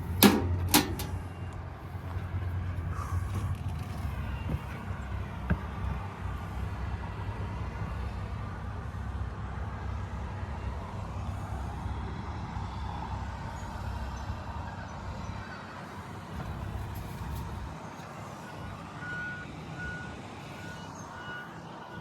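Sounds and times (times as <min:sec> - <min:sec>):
tractor diesel engine rumbling: 0:00.0 - 0:09.5.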